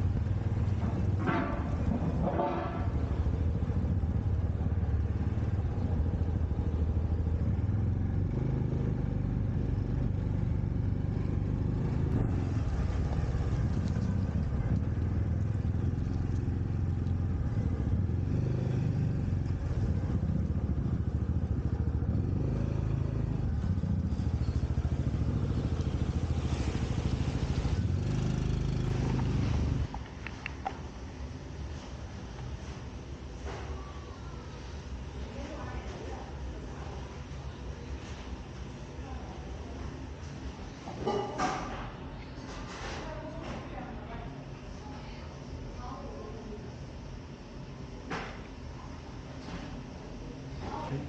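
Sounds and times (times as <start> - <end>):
motorcycle engine cruising: 0.0 - 35.8.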